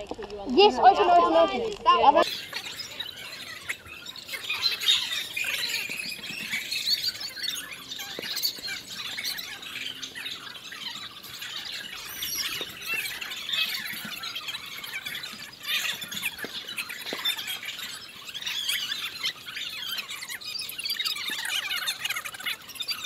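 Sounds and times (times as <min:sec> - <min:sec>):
flock of birds calling: 0:00.0 - 0:23.0.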